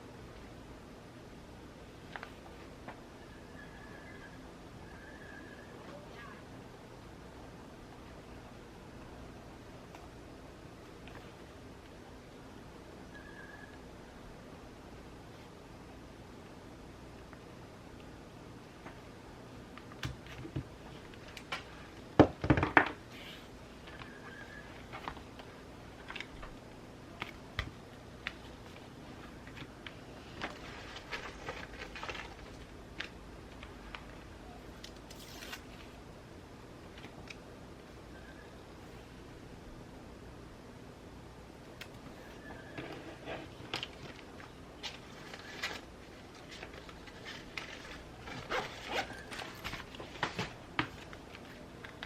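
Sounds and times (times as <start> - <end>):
faint background hiss: 0.0 - 52.0
paper rustling and tapping: 43.6 - 52.0.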